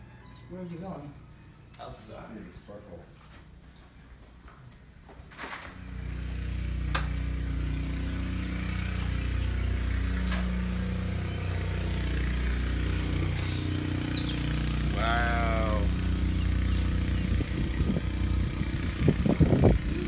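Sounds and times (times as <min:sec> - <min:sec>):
low mechanical hum: 0:03.1 - 0:20.0.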